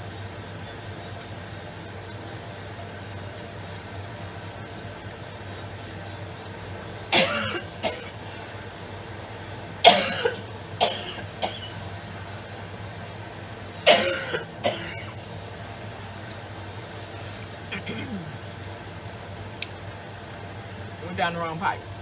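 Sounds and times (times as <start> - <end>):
woman coughing: 7.1 - 8.2, 9.8 - 11.8, 13.9 - 15.2, 17.7 - 18.4.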